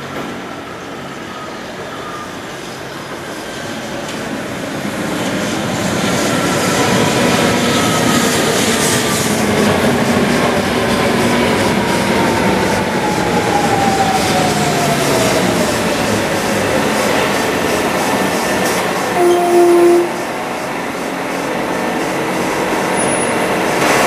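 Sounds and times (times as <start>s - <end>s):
train wheels rumbling on rail: 0.0s - 24.0s
train motor whine: 13.0s - 20.7s.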